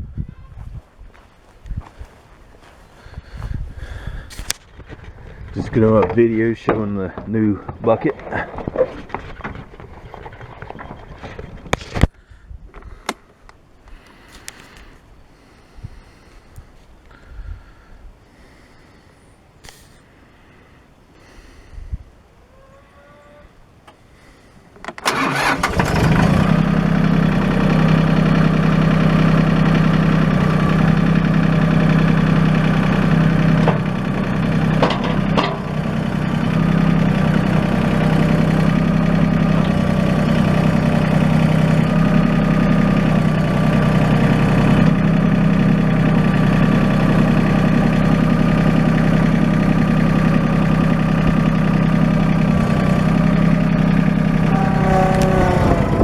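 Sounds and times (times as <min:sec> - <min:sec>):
diesel engine cranking and running: 0:03.4 - 0:12.1, 0:24.8 - 0:56.0.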